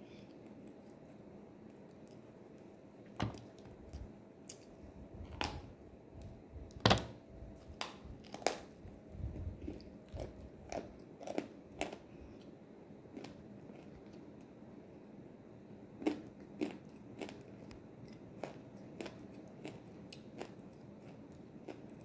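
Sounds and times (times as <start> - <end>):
crunchy clay being chewed: 8.1 - 12.5, 16.0 - 22.0.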